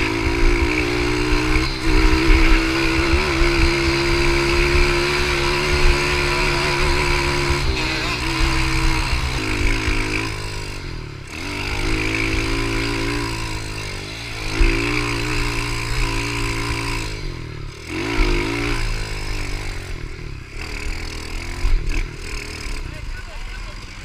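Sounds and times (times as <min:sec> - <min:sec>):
pit bike engine revving: 0:00.0 - 0:24.0.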